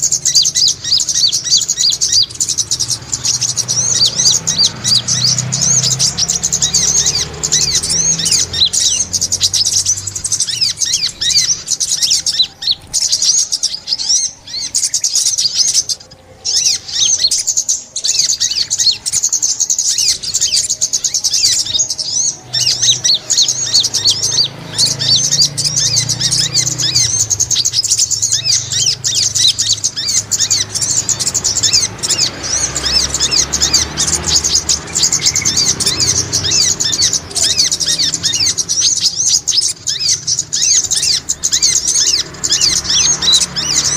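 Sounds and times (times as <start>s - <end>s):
sunbirds chirping and twittering: 0.0s - 43.9s.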